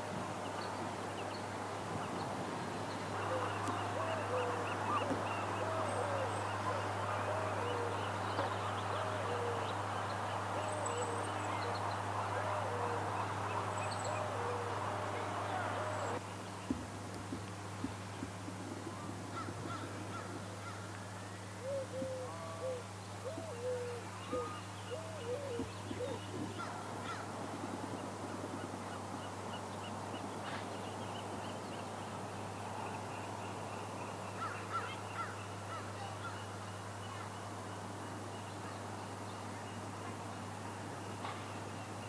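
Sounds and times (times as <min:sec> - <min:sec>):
wild birds calling: 0:02.8 - 0:16.2, 0:19.4 - 0:27.4.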